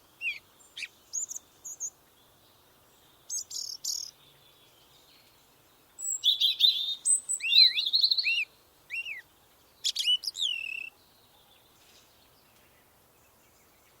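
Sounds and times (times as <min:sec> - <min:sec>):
songbird chirping and whistling: 0:06.0 - 0:09.2, 0:09.8 - 0:10.9.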